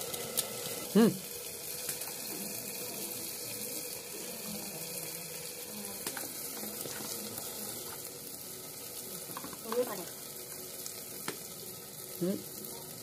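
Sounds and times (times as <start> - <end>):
chicken sizzling in oil: 0.0 - 13.0
small crackles: 5.9 - 8.1.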